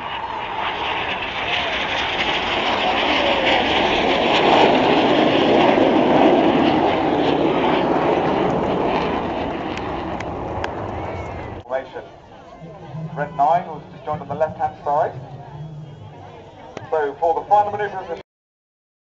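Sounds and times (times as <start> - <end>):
jets flying past: 0.0 - 11.6, 12.4 - 18.1.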